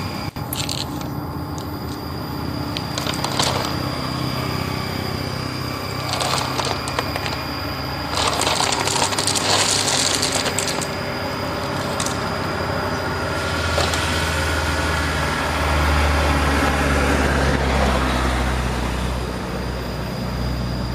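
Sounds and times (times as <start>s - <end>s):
toy truck running: 0.0s - 20.9s
clatter of stones: 0.4s - 1.7s, 2.8s - 3.8s, 6.0s - 7.5s, 8.1s - 11.0s, 11.6s - 12.3s, 13.7s - 14.2s.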